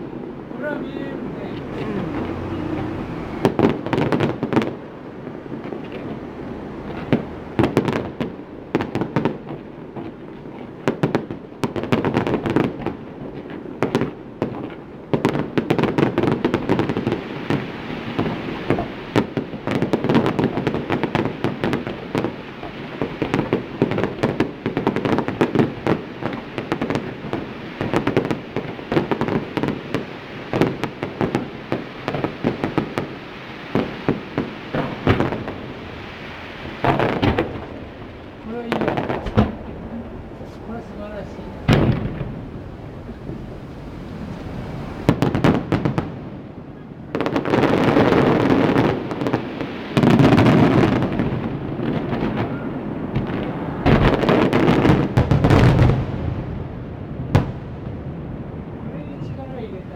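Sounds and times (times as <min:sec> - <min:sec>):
continuous rumble: 0:00.0 - 0:08.7, 0:34.7 - 0:47.1
fireworks bursts and crackling: 0:00.0 - 0:59.9.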